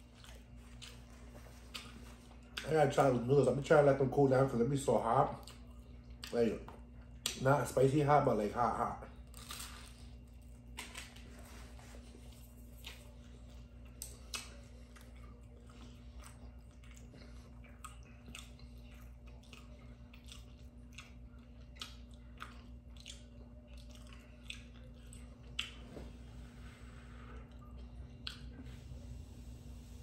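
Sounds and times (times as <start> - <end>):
faint steady hum: 0.0 - 30.0
wet mouth chewing clicks: 16.2 - 25.8.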